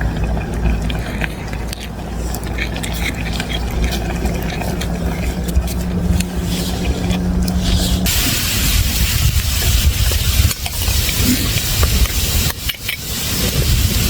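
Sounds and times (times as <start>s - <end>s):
car engine humming: 0.0s - 14.0s
steady hiss: 6.4s - 14.0s.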